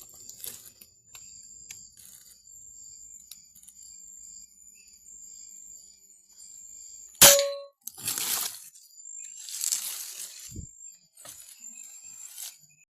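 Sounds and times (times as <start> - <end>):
short ringing tone: 7.2 - 7.7
rustling: 7.9 - 12.8.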